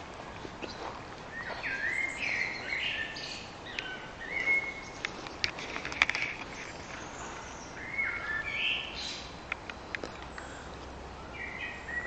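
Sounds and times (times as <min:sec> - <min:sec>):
steady outdoor hiss: 0:00.0 - 0:12.0
birdsong whistled notes: 0:01.3 - 0:05.0, 0:06.6 - 0:09.3, 0:11.2 - 0:12.0.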